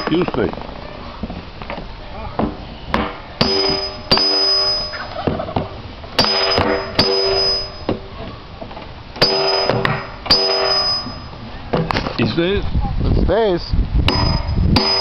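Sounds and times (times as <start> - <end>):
hammer striking steel hoop: 2.4 - 5.4, 6.2 - 8.1, 9.2 - 11.9, 14.1 - 15.0.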